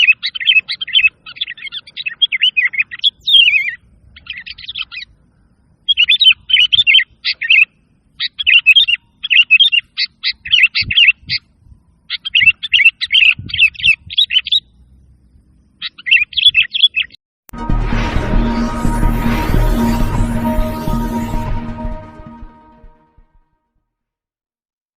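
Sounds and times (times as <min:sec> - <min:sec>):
bulbul singing: 0:00.0 - 0:14.8
music: 0:17.5 - 0:23.6.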